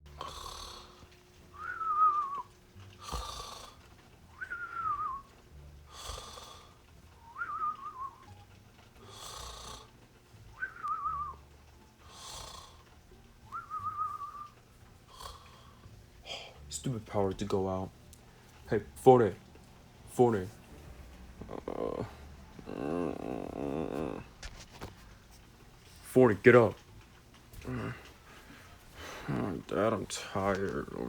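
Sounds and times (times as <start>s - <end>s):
cartoon snoring: 0.1s - 1.0s, 3.0s - 3.9s, 5.9s - 6.8s, 9.0s - 9.9s, 12.0s - 12.9s, 15.1s - 16.5s, 21.4s - 24.4s.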